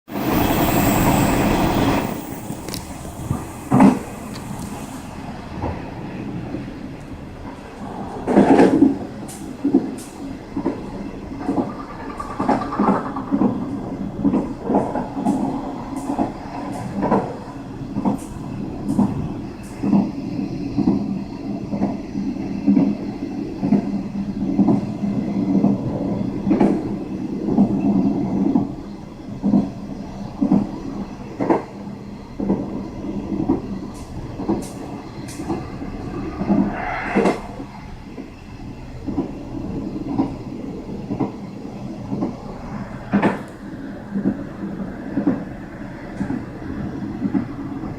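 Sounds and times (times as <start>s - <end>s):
train rumble: 0.1s - 47.9s
train wheels clacking over rail joints: 8.2s - 17.4s.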